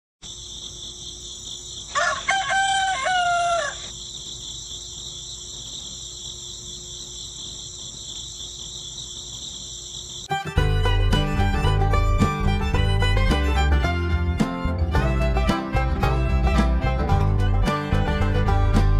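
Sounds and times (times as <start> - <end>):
crickets chirring: 0.2 - 10.4
rooster crowing: 1.9 - 4.0
fiddle music: 10.3 - 18.9.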